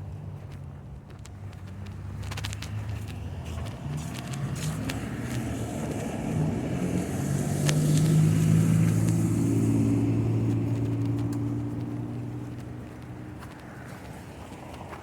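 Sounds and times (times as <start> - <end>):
car engine hum: 0.0 - 15.0.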